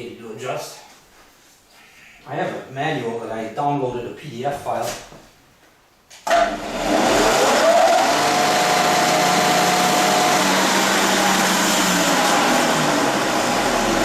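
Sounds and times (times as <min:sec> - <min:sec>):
floor sander motor whine: 0:06.3 - 0:14.0.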